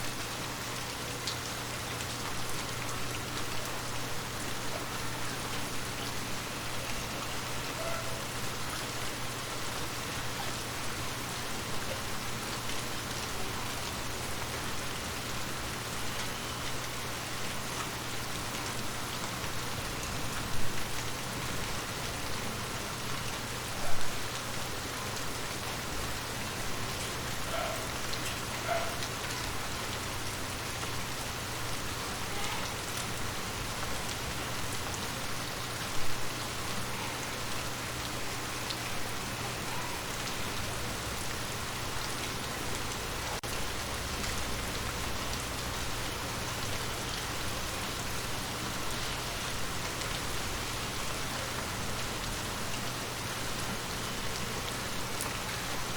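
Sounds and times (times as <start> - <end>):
rain pattering on surfaces: 0.0 - 55.9.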